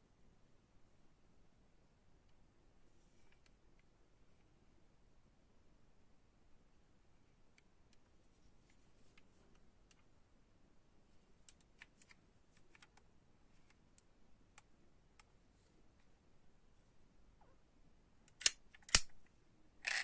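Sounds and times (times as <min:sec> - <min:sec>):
faint light clicks and ticks: 0:03.2 - 0:04.5, 0:11.4 - 0:16.1.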